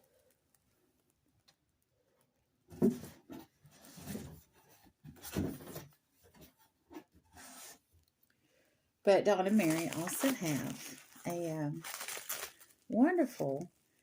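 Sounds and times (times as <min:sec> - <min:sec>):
plastic packaging crinkling: 0:09.3 - 0:14.0.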